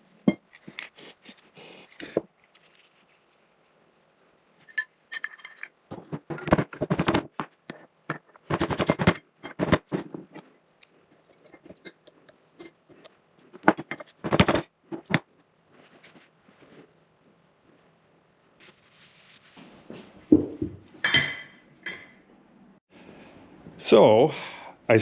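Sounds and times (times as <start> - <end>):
metal parts rattling and scraping: 4.6 - 10.5.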